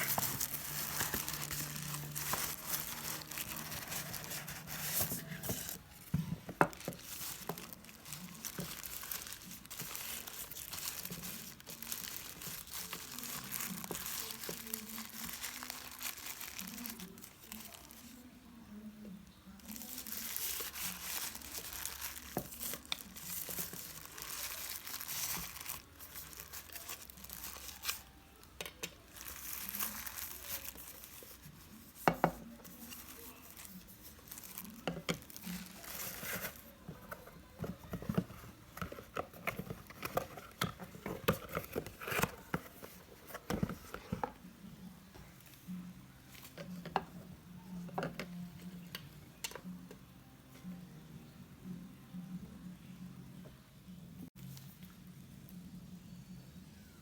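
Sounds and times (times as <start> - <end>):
packaging crinkling and tearing: 0.0 - 5.8, 6.6 - 18.2, 19.6 - 28.2, 29.0 - 44.3.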